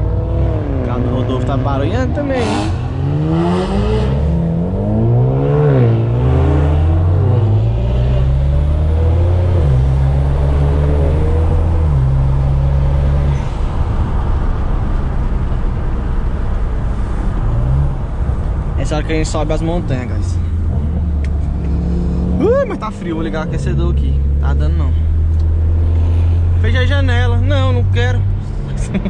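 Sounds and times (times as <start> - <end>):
car engine accelerating hard: 0.0 - 18.6, 20.6 - 29.0.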